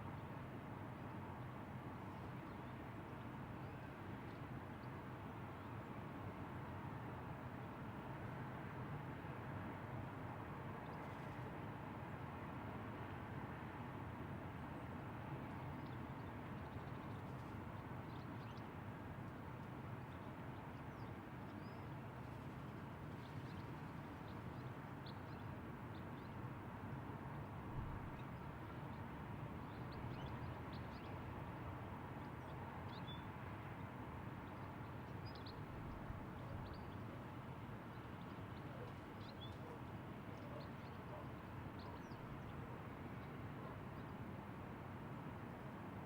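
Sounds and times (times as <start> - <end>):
low rush of background noise: 0.0 - 46.0.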